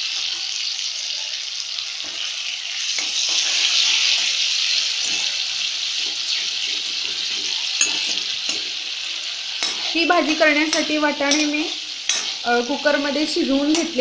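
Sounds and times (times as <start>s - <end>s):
spices sizzling in hot oil: 0.0s - 14.0s
metal spoon scraping pan: 2.0s - 13.0s.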